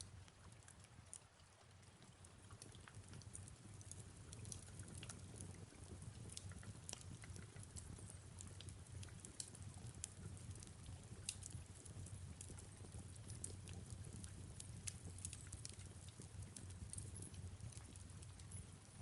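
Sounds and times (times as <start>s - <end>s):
fireplace crackling and popping: 0.0s - 19.0s.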